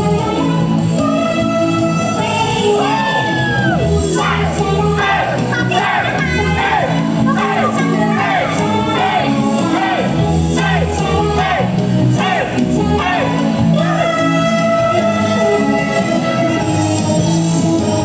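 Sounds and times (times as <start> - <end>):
loud pop music with singing: 0.0 - 18.0
crowd shouting: 2.8 - 14.2.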